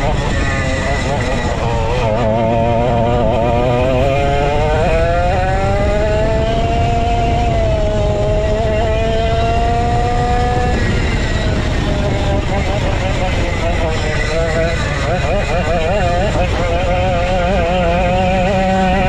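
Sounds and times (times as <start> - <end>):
go-kart engine accelerating: 0.0 - 19.0.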